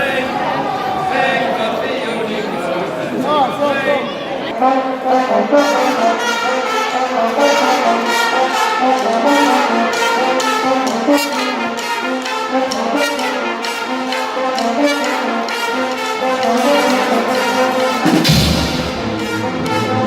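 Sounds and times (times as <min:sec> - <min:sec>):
trumpets and trombones: 0:04.5 - 0:20.0
steady drumbeat: 0:08.1 - 0:20.0.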